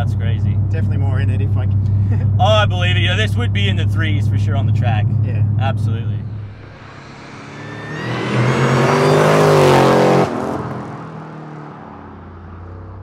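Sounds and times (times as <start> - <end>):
car engine accelerating past: 6.2 - 13.0.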